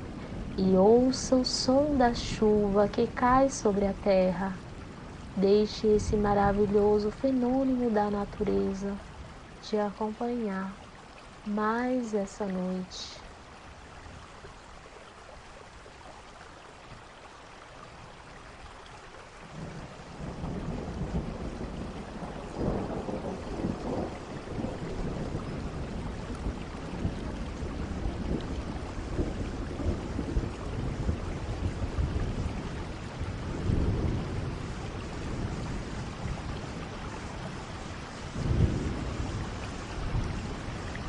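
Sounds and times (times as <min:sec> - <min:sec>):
thunder rumbling: 0:00.0 - 0:10.4, 0:19.5 - 0:41.0
steady rain falling: 0:00.0 - 0:41.0.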